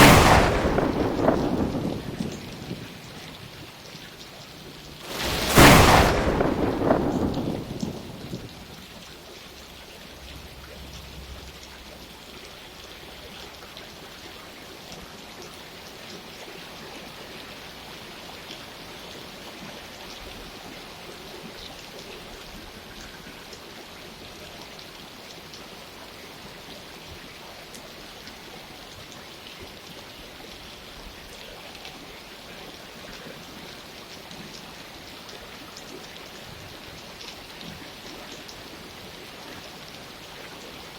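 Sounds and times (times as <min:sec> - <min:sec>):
thunderclap rumbling: 0:00.0 - 0:03.5, 0:05.0 - 0:08.9
steady rain: 0:00.0 - 0:40.9.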